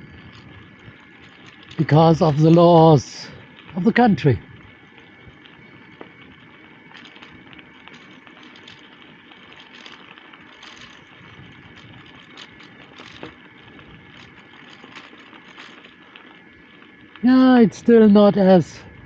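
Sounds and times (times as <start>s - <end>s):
rush of tyres and wind: 0.0s - 2.3s, 4.4s - 16.0s
bicycle clicks and rattles: 0.0s - 17.2s.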